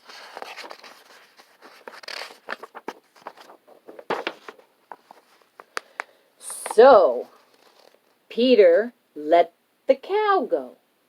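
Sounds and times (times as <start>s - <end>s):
paper pages rustling: 0.0s - 8.2s.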